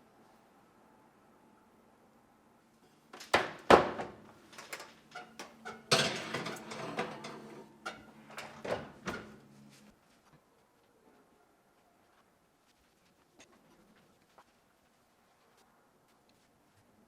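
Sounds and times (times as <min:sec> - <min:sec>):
kitchen clicks and clattering: 0:04.5 - 0:09.4.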